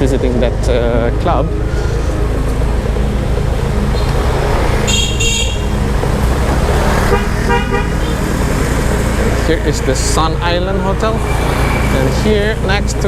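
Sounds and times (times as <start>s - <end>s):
car driving in traffic: 0.0s - 13.0s
vehicle horn toots: 4.8s - 5.8s, 7.0s - 8.2s.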